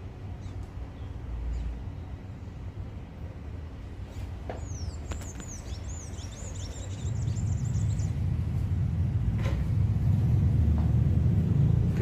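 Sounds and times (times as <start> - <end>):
small bird twittering: 4.6 - 8.2.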